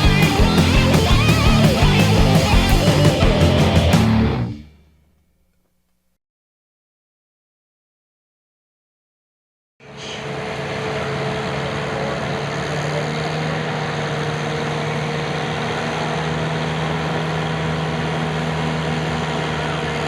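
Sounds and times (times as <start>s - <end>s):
engine running steadily: 0.0s - 4.1s, 10.0s - 20.0s.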